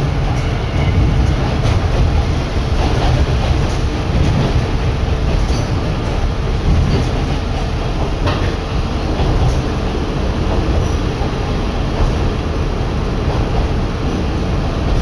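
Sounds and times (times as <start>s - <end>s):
railcar engine and wheels rumbling: 0.0s - 15.0s
faint clicks from rails: 1.2s - 12.4s.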